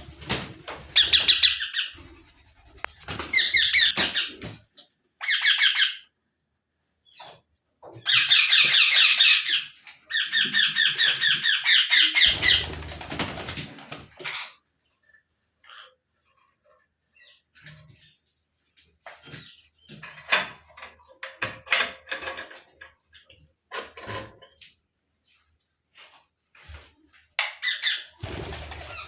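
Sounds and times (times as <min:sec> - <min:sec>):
parakeet shrill chattering screeches: 0:01.0 - 0:02.0, 0:03.2 - 0:04.4, 0:05.2 - 0:06.0, 0:08.1 - 0:12.8.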